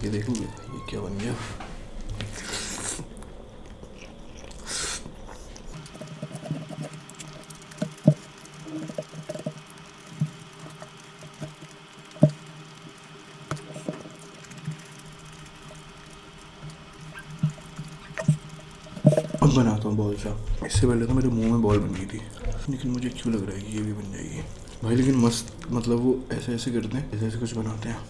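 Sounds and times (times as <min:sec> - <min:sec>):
wet chewing: 0:02.0 - 0:26.2.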